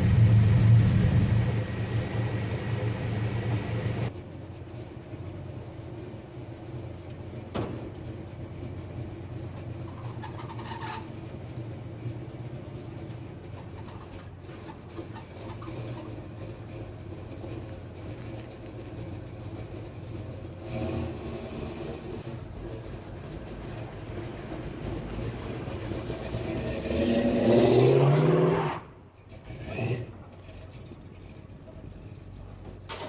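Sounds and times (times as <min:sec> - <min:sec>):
car engine revving: 0:00.0 - 0:04.1, 0:20.5 - 0:23.0, 0:23.6 - 0:30.7.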